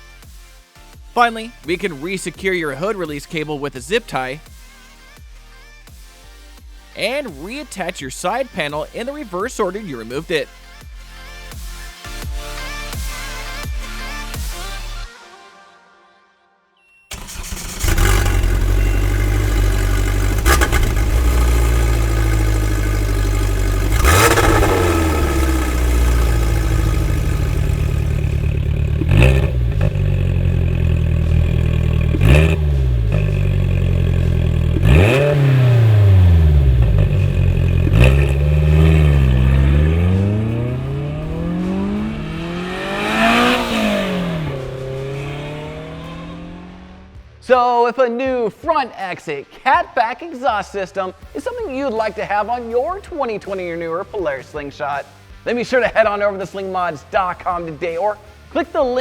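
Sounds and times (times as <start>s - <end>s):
car engine idling and revving: 17.1s - 47.2s.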